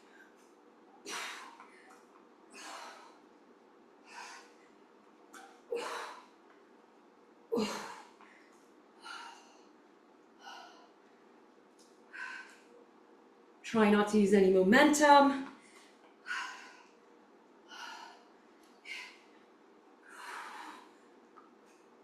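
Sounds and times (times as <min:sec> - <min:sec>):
woman breathing hard: 0:01.0 - 0:03.4, 0:04.0 - 0:04.8, 0:05.7 - 0:06.4, 0:07.5 - 0:09.8, 0:10.4 - 0:11.1, 0:12.1 - 0:12.8, 0:15.6 - 0:21.8.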